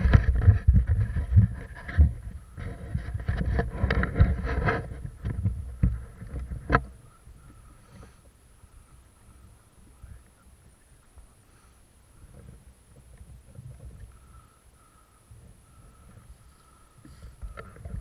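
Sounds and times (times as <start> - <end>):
thumps and rustling on microphone: 0.0 - 8.4, 12.2 - 14.2, 15.3 - 18.0.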